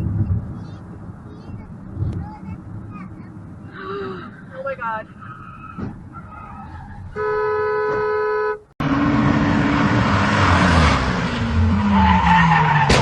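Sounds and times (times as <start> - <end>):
vehicle and road noise: 0.0 - 13.0
car horn blast: 7.2 - 8.7.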